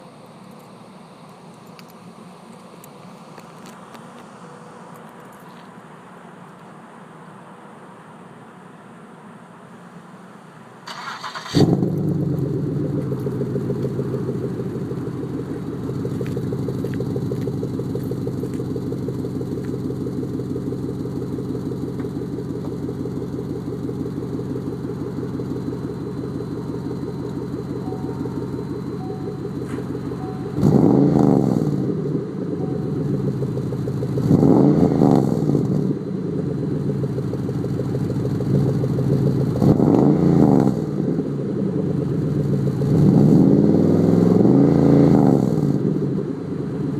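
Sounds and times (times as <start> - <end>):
car exhaust idling and revving: 11.3 - 46.9.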